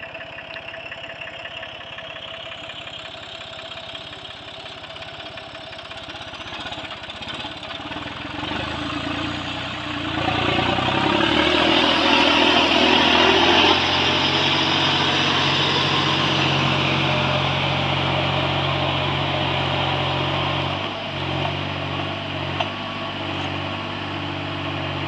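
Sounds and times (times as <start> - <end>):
tractor engine working: 0.0 - 25.0.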